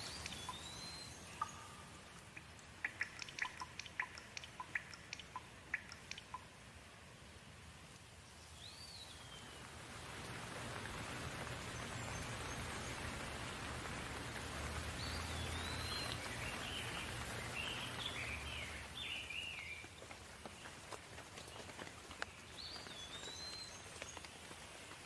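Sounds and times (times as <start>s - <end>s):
bird chirping: 0.0s - 6.5s, 8.4s - 9.7s, 15.0s - 20.0s, 22.2s - 24.3s
steady rain falling: 0.0s - 25.0s.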